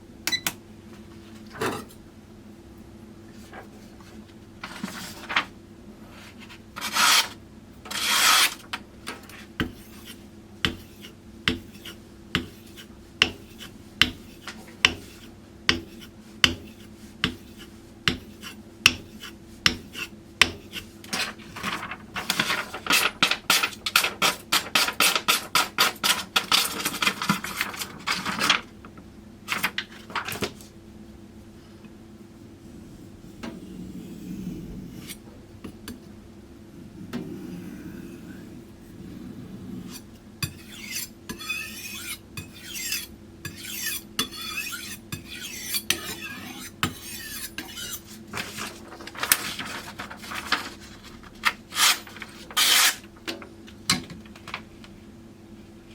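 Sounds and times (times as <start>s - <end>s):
knife scraping on whetstone: 6.8s - 8.6s, 9.7s - 20.9s, 32.7s - 35.2s, 37.0s - 48.8s, 51.7s - 53.0s.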